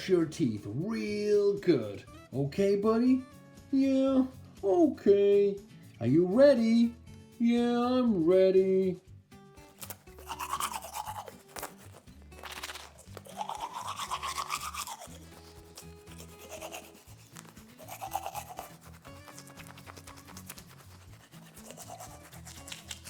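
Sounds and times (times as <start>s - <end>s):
background music: 0.0s - 23.0s
toothbrush scrubbing: 9.7s - 23.0s.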